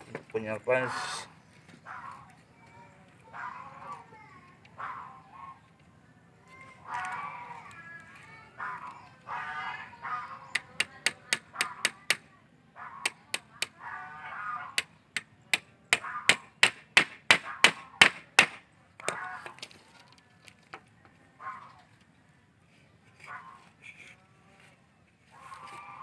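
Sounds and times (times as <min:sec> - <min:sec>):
honking calls: 0:08.6 - 0:12.2, 0:15.9 - 0:19.6
hammer driving nails into wood: 0:10.6 - 0:12.2, 0:13.1 - 0:13.7, 0:15.2 - 0:19.2.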